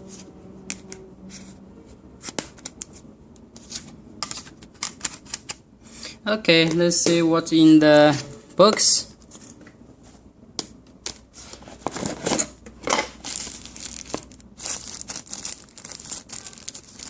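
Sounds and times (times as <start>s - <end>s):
plastic packaging crinkling: 13.1s - 17.0s.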